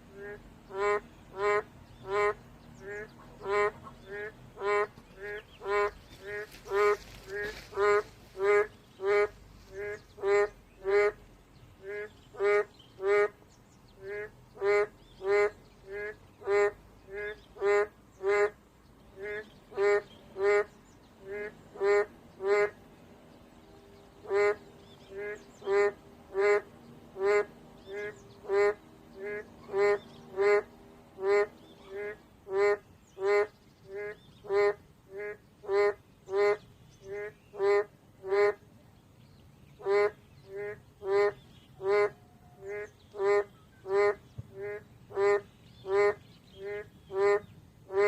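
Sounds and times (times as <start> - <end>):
frogs honking calls: 0.0 - 11.2, 11.8 - 13.4, 14.0 - 22.8, 24.2 - 38.7, 39.8 - 48.0.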